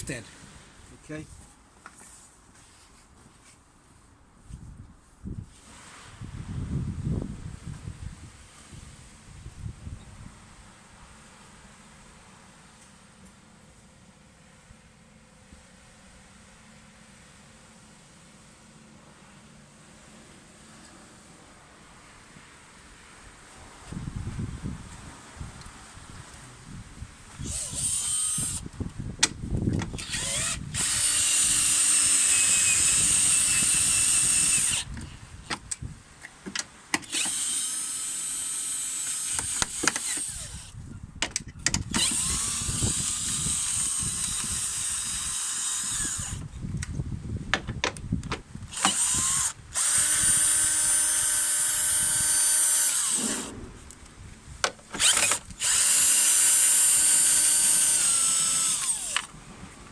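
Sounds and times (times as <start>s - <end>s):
power drill running: 27.4s - 28.6s, 30.0s - 34.9s, 37.1s - 40.8s, 41.9s - 46.5s, 48.7s - 53.5s, 54.9s - 59.4s.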